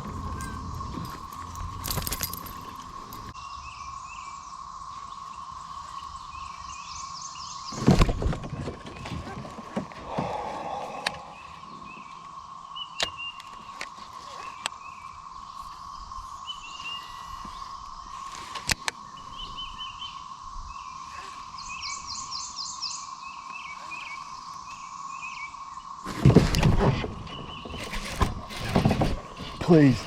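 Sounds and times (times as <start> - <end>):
birds chirping: 0.0 - 8.0, 8.8 - 26.1, 26.9 - 30.0.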